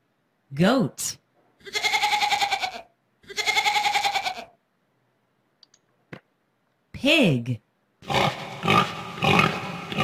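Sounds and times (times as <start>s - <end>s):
goat bleating: 1.6s - 4.6s.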